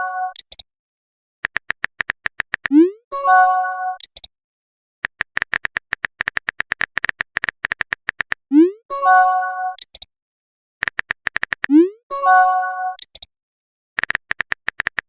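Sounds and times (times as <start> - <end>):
phone keyboard typing clicks: 0.3 - 0.6, 1.4 - 2.8, 4.0 - 4.3, 5.0 - 8.4, 9.8 - 10.1, 10.8 - 11.8, 13.0 - 13.3, 14.0 - 15.0.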